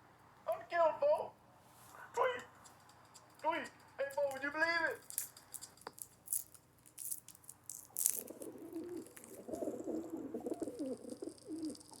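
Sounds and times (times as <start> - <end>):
rustling clicks: 1.9 - 12.0
pigeon cooing: 8.0 - 12.0.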